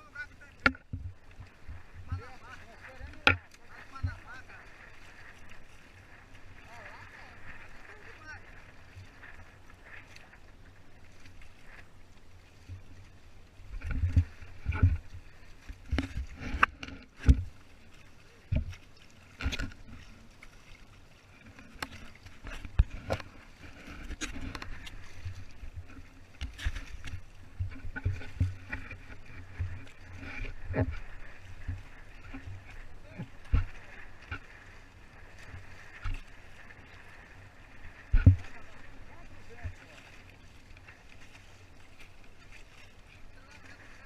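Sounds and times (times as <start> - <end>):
water knocking against hull: 0.4 - 4.4, 13.7 - 17.6, 21.7 - 34.4.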